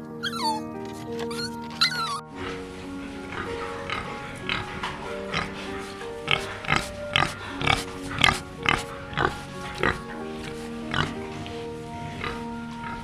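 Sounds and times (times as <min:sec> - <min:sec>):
background music with held notes: 0:00.0 - 0:13.0
pig grunting: 0:01.2 - 0:13.0.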